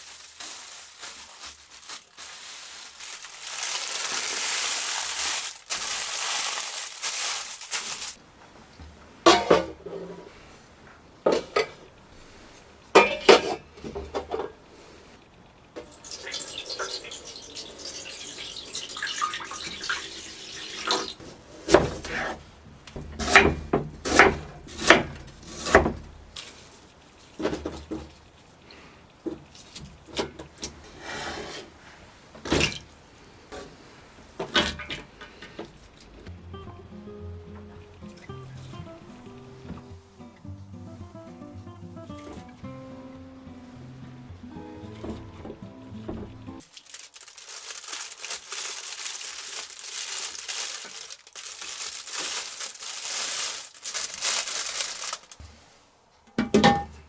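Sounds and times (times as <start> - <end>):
kitchen wrap crinkling: 0.0 - 36.2, 46.6 - 57.0
scraping sounds: 30.2 - 32.0.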